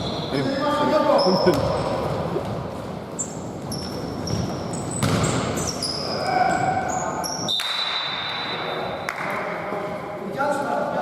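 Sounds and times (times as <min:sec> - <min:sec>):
sneakers squeaking on court: 0:00.0 - 0:00.4, 0:01.0 - 0:08.7.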